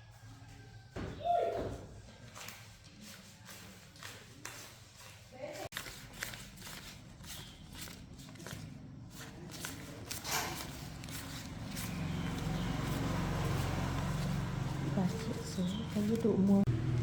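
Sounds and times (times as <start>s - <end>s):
engine running at low speed: 11.1s - 17.0s.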